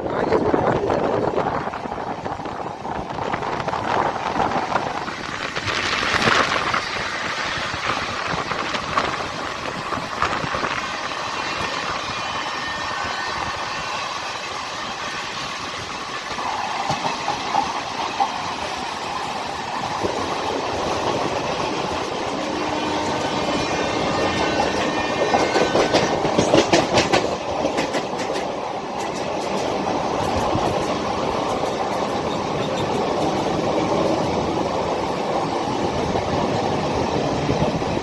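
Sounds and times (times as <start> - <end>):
train rumbling on rails: 0.0 - 38.0
wheel clacks over rail joints: 24.6 - 34.4.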